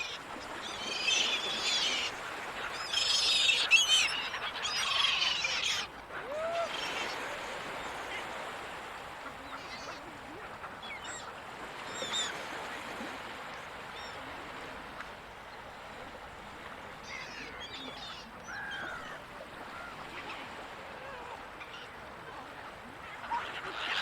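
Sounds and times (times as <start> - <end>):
gulls squawking: 0.0 - 8.6, 17.1 - 22.0
ocean surf: 0.0 - 24.0.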